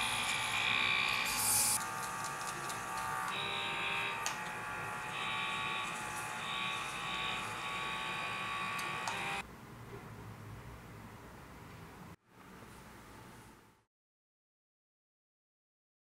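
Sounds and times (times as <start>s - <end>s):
electric vibrating buzz: 0.0s - 9.4s.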